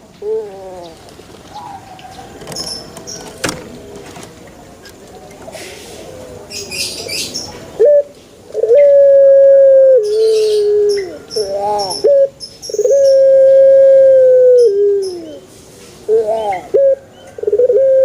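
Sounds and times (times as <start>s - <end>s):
small birds chirping: 0.0s - 3.8s, 4.8s - 8.3s, 10.0s - 13.7s, 14.6s - 17.5s
dove cooing: 0.2s - 3.3s, 6.6s - 15.5s, 16.1s - 18.0s.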